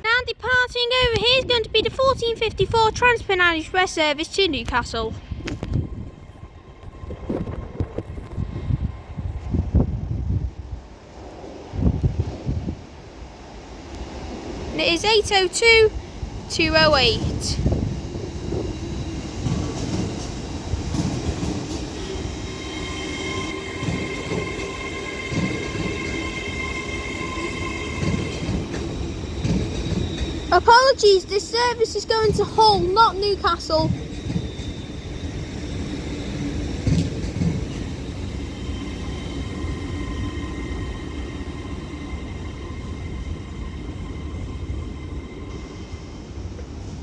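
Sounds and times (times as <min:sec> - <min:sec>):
train low rumble: 0:00.0 - 0:47.0
high-pitched wheel squeal: 0:22.0 - 0:30.6.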